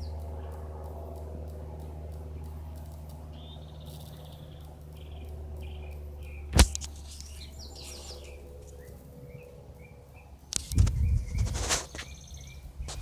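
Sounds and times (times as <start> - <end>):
low steady hum: 0.0 - 13.0
small birds chirping: 0.0 - 13.0
sharp click: 6.2 - 8.9, 10.5 - 12.2.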